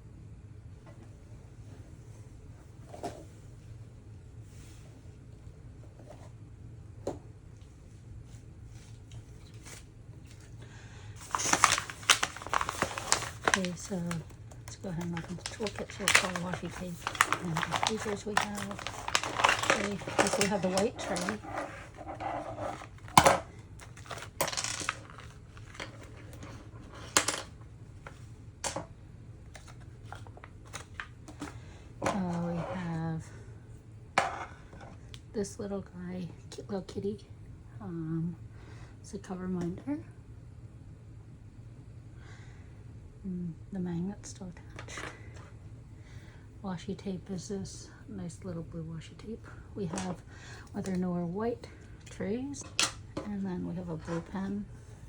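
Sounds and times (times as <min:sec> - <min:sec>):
plastic packaging crinkling: 0:11.2 - 0:27.5
plastic tools clacking: 0:15.0 - 0:27.5.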